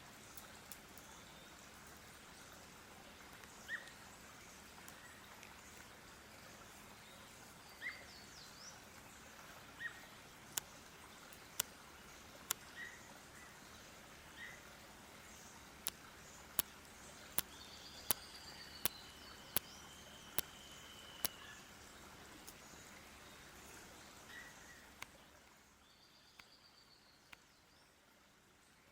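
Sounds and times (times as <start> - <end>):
birds chirping: 9.8 - 27.5
sharp clicks: 17.3 - 19.7, 20.3 - 21.4
faint bird whistle: 17.6 - 21.7.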